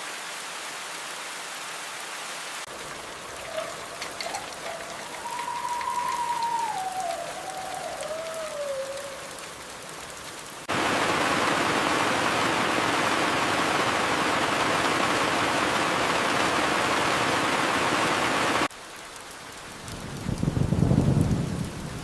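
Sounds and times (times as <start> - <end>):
rain hissing: 0.0 - 22.0
faint falling whistle: 3.5 - 9.4.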